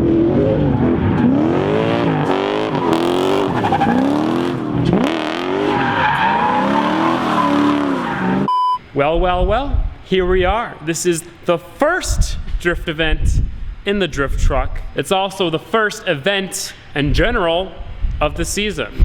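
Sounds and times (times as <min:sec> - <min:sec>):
engine revving: 0:00.0 - 0:05.8, 0:06.4 - 0:08.5.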